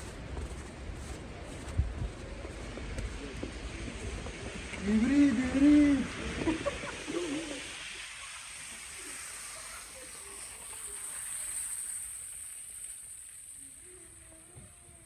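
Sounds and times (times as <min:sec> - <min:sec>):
steady outdoor hiss: 0:00.0 - 0:15.0
faint distant voices: 0:00.4 - 0:12.3.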